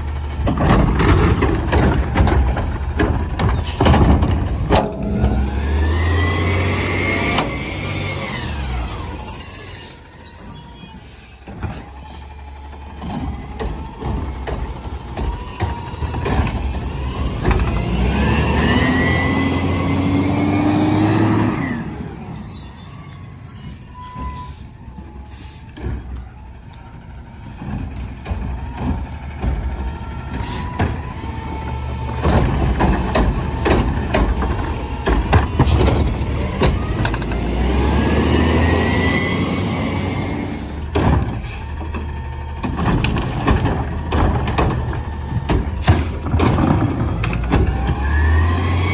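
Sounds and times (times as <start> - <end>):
garbage truck engine revving: 0.0 - 48.9
knocks and clanks: 0.4 - 5.7, 12.7 - 18.2, 25.7 - 26.4, 27.3 - 37.7, 40.8 - 48.4
high squeal: 9.0 - 12.3, 21.6 - 25.7.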